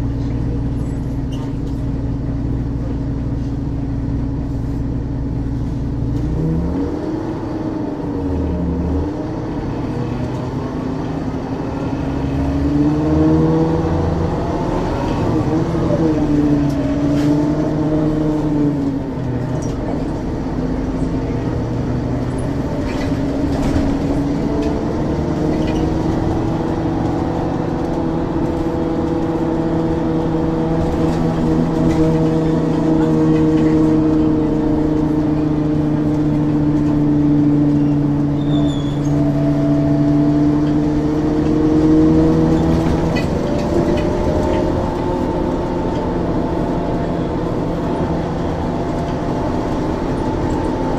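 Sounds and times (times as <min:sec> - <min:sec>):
bus diesel engine droning: 0:00.0 - 0:50.9.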